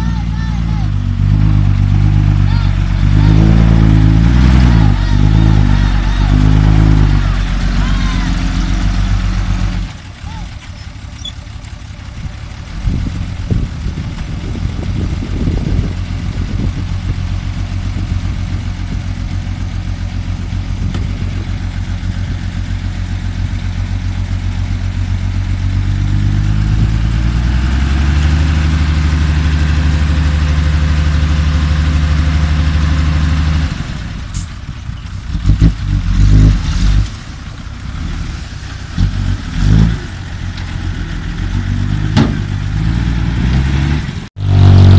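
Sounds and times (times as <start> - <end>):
truck engine revving: 0.0 - 44.9
knocks and thumps: 42.1 - 42.6.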